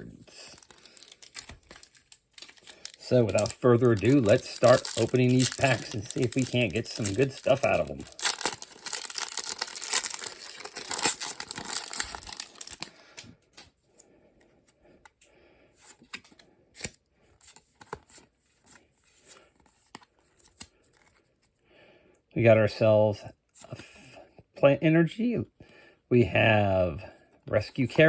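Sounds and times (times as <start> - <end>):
foil wrapper tearing: 0.4 - 12.9
cards clicking and rustling: 0.4 - 13.7, 15.9 - 21.2.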